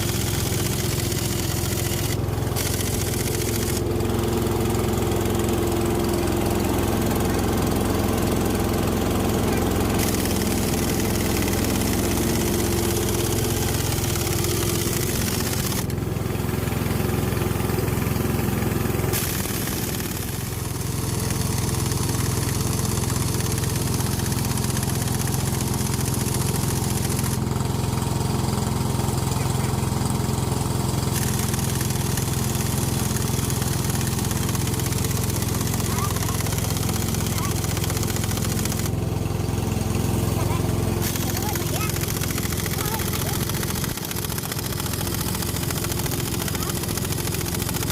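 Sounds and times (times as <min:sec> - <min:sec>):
engine idling: 0:00.0 - 0:47.9.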